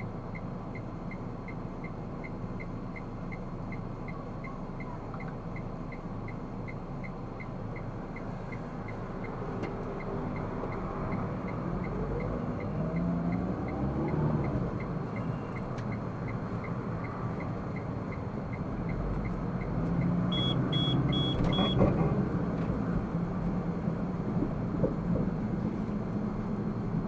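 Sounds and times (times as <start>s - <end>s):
car engine and road noise: 0.0s - 27.0s
short high electronic beeps: 20.3s - 21.8s.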